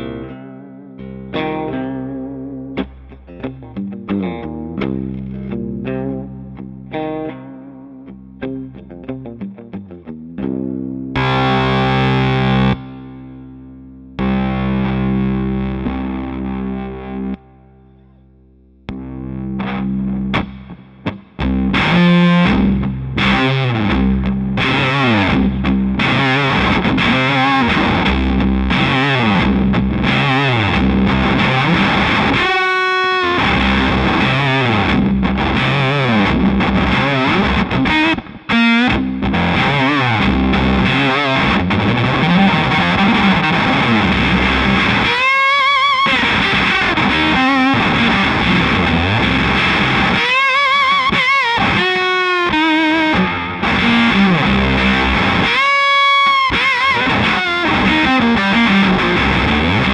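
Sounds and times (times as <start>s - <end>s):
fuzz distorted baritone guitar: 0.0s - 59.9s.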